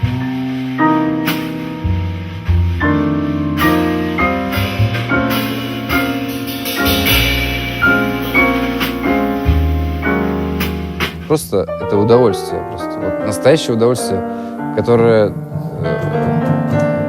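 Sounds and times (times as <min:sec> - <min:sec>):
double bass notes: 0:00.0 - 0:17.0
jazz piano chords: 0:00.0 - 0:17.0.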